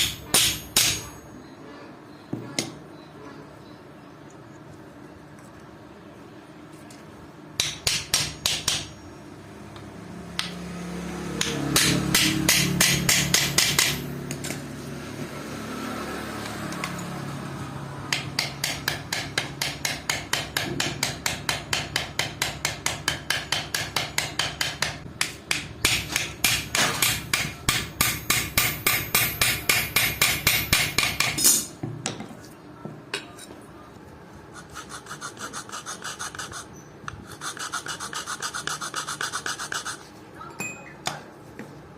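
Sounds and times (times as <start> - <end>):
hammer striking rapidly: 0.0 - 1.2, 11.4 - 14.1, 18.1 - 31.7.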